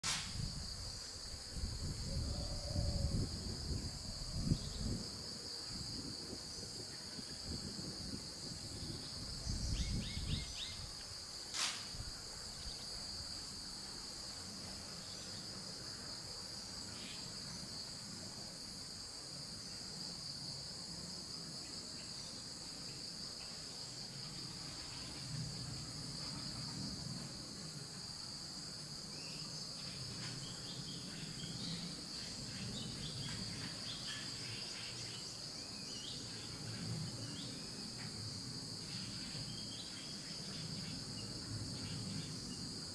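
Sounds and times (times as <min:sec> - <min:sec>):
sharp click: 0:00.0 - 0:00.4, 0:11.5 - 0:11.9
insects chorus: 0:00.0 - 0:42.9.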